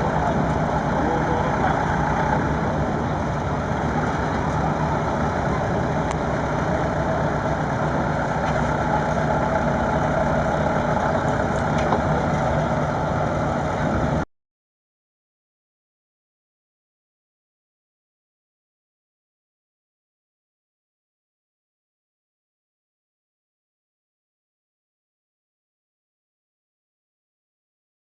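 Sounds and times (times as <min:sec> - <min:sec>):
diesel engine running: 0:00.0 - 0:14.3.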